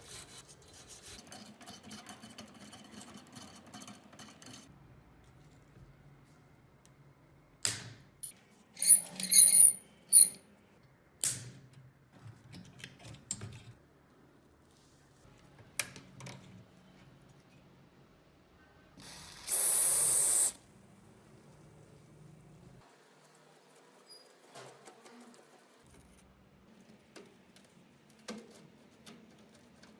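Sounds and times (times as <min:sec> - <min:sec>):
metal parts knocking and clinking: 0:08.2 - 0:10.4.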